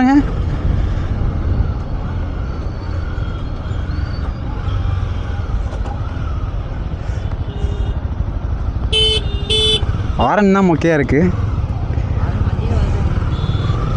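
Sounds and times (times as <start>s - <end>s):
wind noise: 0.0s - 10.2s
road noise: 0.0s - 13.9s
motorcycle engine running at low revs: 0.3s - 13.9s.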